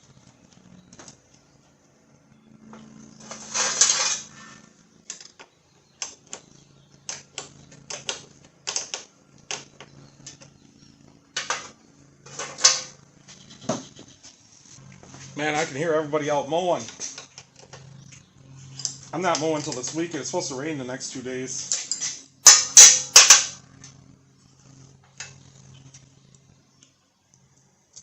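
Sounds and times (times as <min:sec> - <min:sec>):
distant lawnmowers droning: 0:00.0 - 0:28.0
metal tools clicking and clacking: 0:21.6 - 0:23.6.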